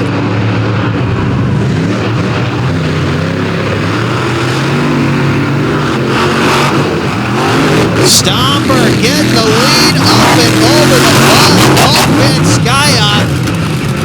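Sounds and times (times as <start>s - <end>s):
monster truck engines revving: 0.0s - 14.0s.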